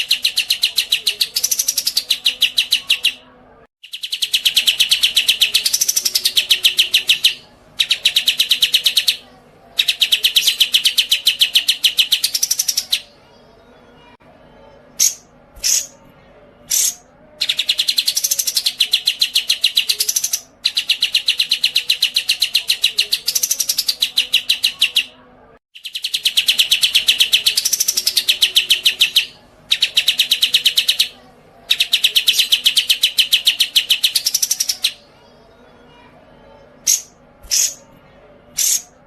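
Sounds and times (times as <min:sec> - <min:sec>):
songbird chirping and trilling: 0:00.0 - 0:39.0.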